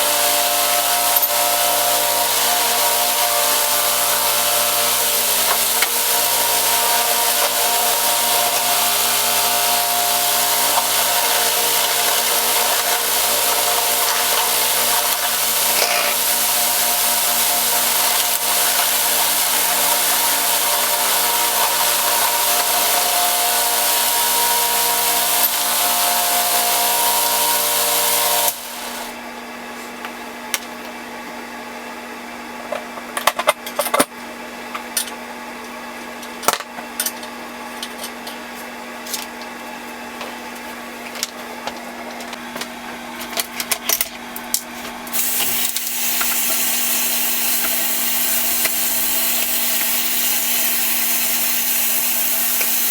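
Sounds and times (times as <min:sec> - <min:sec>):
power tool on metal: 0:00.0 - 0:29.2, 0:45.1 - 0:52.9
steady hum: 0:00.0 - 0:29.3.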